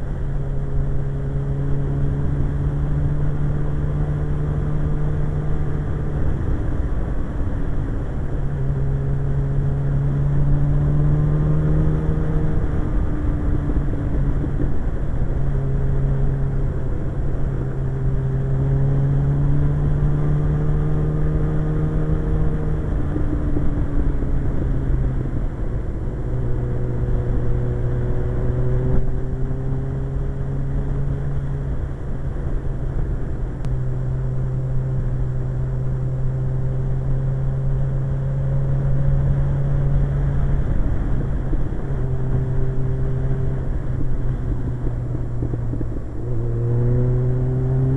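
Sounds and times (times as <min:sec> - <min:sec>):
motorcycle engine running: 0:00.0 - 0:47.9
wind noise on microphone: 0:01.8 - 0:47.9.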